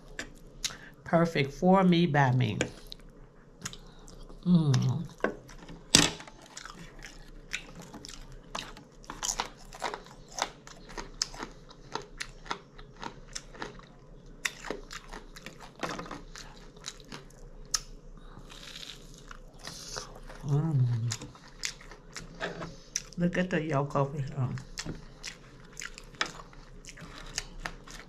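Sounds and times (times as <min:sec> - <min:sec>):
crunchy chewing: 0:05.1 - 0:23.2, 0:24.6 - 0:28.0.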